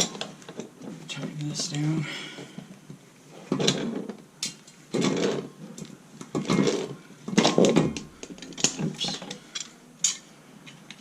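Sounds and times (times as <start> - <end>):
metal wrenches clinking and scraping: 3.5 - 11.0.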